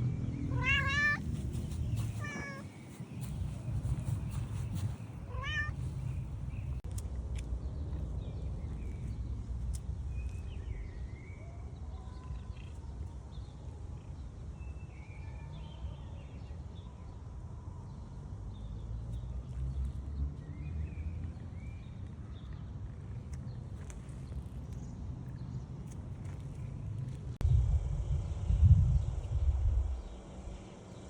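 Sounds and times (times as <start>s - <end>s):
steady low rumble: 0.0s - 11.2s, 23.8s - 31.0s
bird chirps: 0.3s - 6.8s.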